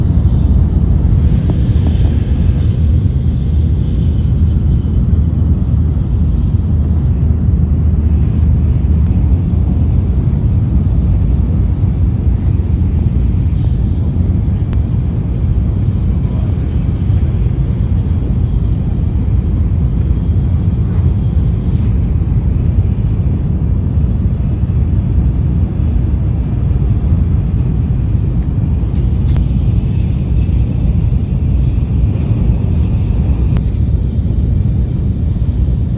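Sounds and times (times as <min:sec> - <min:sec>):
train running low rumble: 0:00.0 - 0:35.9.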